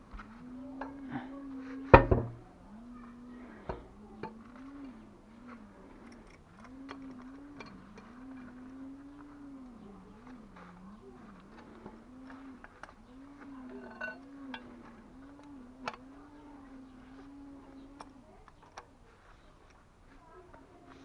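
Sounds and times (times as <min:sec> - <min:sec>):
pigeon cooing: 0:00.0 - 0:19.6
sharp knocks: 0:01.9 - 0:02.4.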